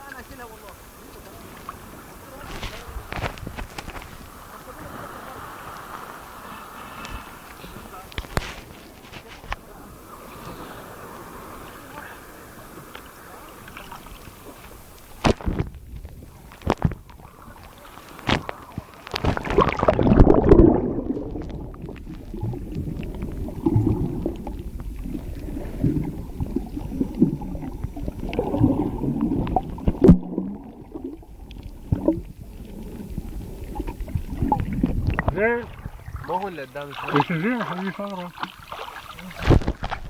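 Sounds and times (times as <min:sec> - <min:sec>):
water rushing: 0:00.0 - 0:40.0
underwater gurgling and bubbling: 0:09.8 - 0:37.2.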